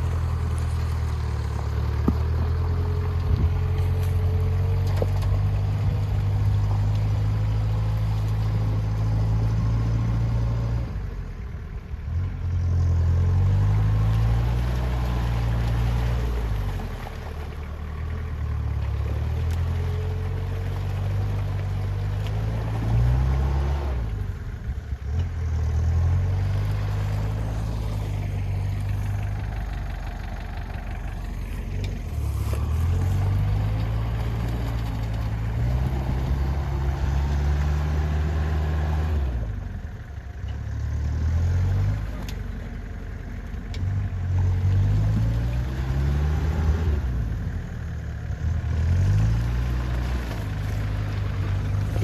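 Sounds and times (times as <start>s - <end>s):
engine revving: 12.1s - 17.0s, 17.9s - 24.4s, 25.0s - 39.9s, 40.7s - 42.5s, 43.8s - 52.0s.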